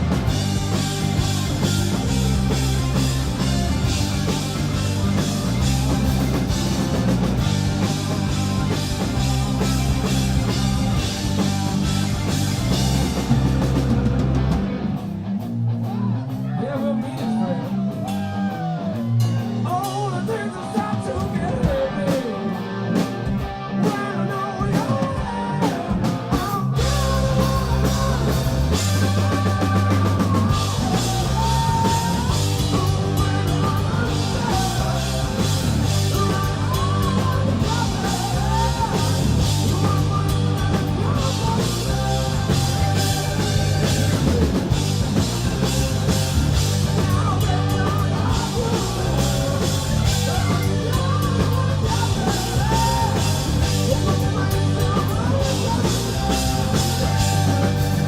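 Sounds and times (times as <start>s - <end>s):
bass guitar: 0.0s - 58.0s
drums: 0.0s - 58.0s
electric guitar: 0.0s - 58.0s
person singing: 23.7s - 44.8s, 46.9s - 58.0s.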